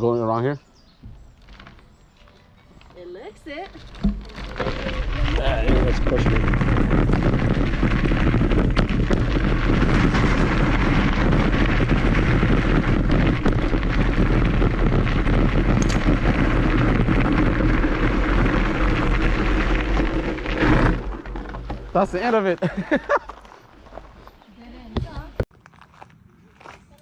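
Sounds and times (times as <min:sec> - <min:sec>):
knocks and rattles from trail: 0:00.7 - 0:26.8
wind buffeting microphone: 0:03.7 - 0:21.0.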